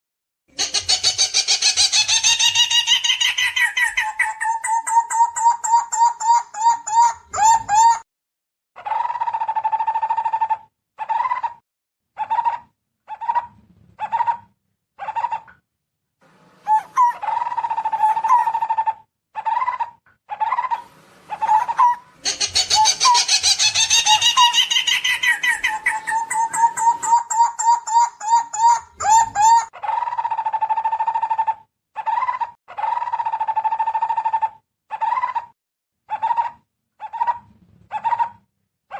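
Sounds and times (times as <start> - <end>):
barbets calling: 20.7 - 29.7.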